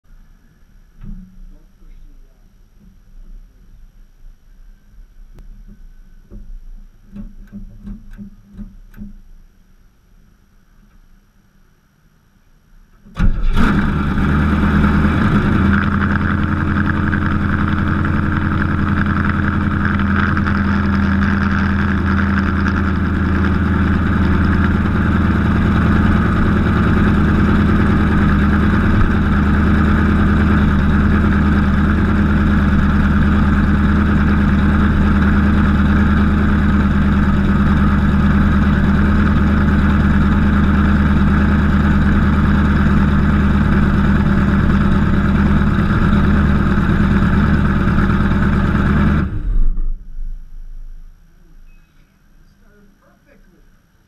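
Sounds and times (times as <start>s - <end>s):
car engine starting and idling: 13.0s - 52.5s.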